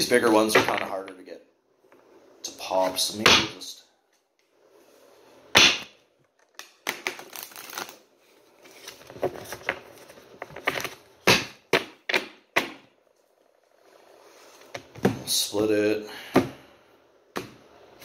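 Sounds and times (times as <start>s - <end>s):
cards rustling: 6.4s - 8.0s.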